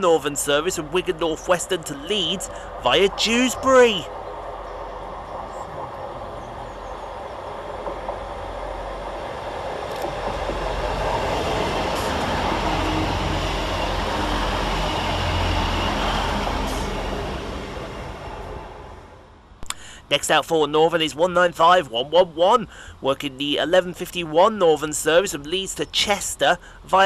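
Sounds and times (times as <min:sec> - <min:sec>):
train wheel noise: 0:00.0 - 0:19.2
diesel engine rumble: 0:00.0 - 0:20.0
faint clicks: 0:19.6 - 0:19.8.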